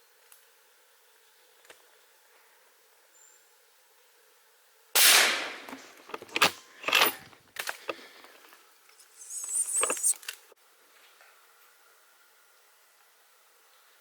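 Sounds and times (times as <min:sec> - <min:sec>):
rifle shot: 0:05.0 - 0:07.0
sharp metallic clicks: 0:05.6 - 0:08.5, 0:09.2 - 0:10.2
light high-pitched rattle: 0:05.7 - 0:10.2.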